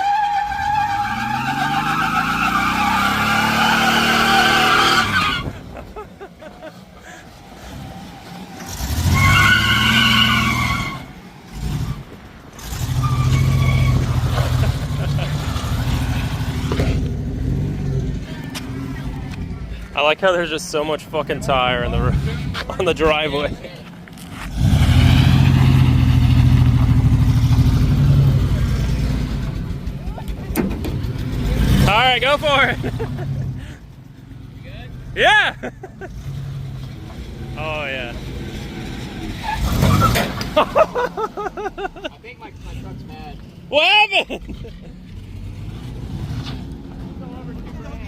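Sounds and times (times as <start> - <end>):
truck engine revving: 0.0 - 43.4, 44.1 - 48.0
tires squealing: 0.0 - 48.0.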